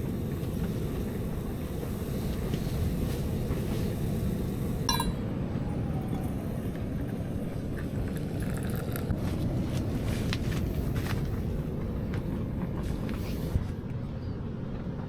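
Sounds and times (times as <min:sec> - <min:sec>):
tableware clink: 0:04.9 - 0:05.2.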